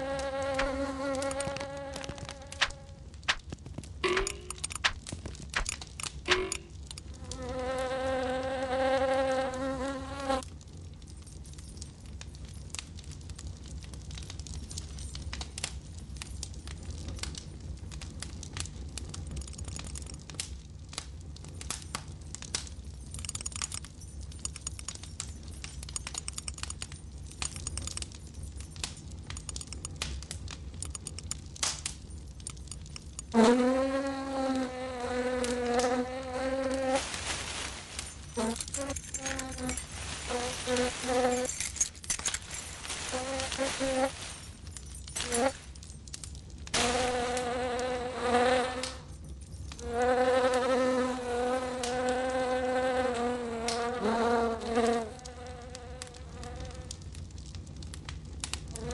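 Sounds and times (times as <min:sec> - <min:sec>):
insect buzzing: 0:00.0 - 0:03.4, 0:06.3 - 0:10.4, 0:33.3 - 0:41.9, 0:42.8 - 0:44.4, 0:45.2 - 0:45.6, 0:46.8 - 0:49.0, 0:49.8 - 0:56.9
faint ticks and crackles: 0:00.0 - 0:58.9.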